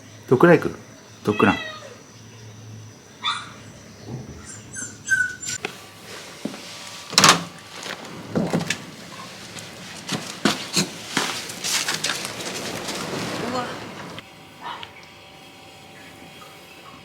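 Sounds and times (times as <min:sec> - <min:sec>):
dog whining: 0:01.3 - 0:02.0, 0:03.2 - 0:05.6.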